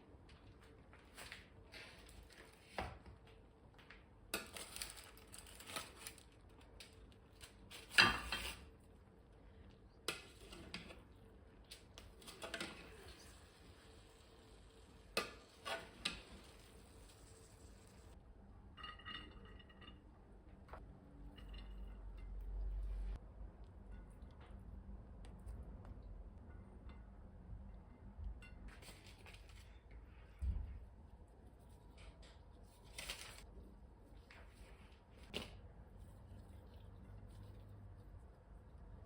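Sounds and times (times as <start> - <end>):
clinking crockery and utensils: 18.8 - 20.1.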